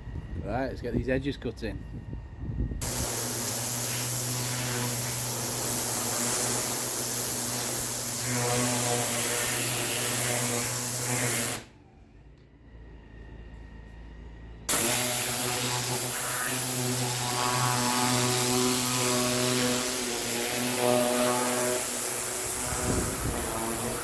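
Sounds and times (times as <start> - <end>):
pressure washer machine hum: 2.8 - 11.7, 14.7 - 24.0
pressure washer water jet hiss: 2.8 - 11.7, 14.7 - 24.0.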